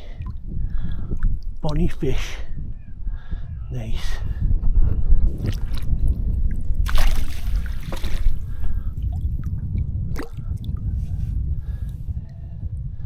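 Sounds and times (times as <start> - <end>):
water splashing and trickling: 5.3 - 10.8.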